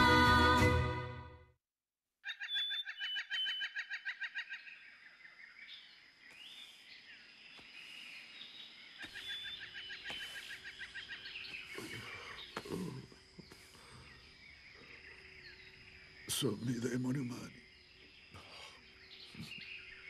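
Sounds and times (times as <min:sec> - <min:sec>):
bird chattering trill: 0:02.2 - 0:04.8
soft bird chirps: 0:02.2 - 0:20.0
bird whistles: 0:02.3 - 0:04.4.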